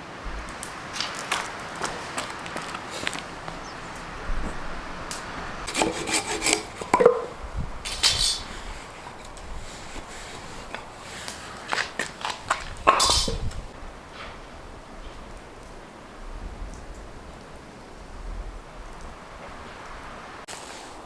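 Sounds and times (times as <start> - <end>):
firewood knocking and scraping: 0.2 - 14.4.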